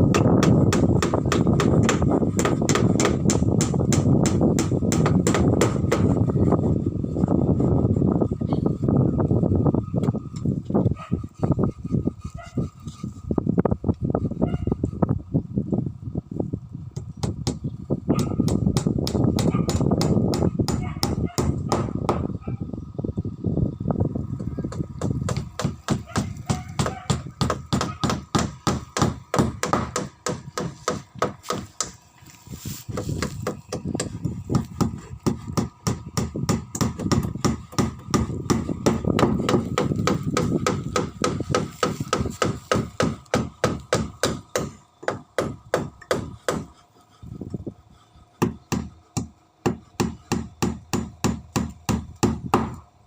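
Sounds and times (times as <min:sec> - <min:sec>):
hammering on wood: 0:00.1 - 0:06.2, 0:17.0 - 0:22.3, 0:24.4 - 0:32.0, 0:32.9 - 0:46.8, 0:48.4 - 0:52.8.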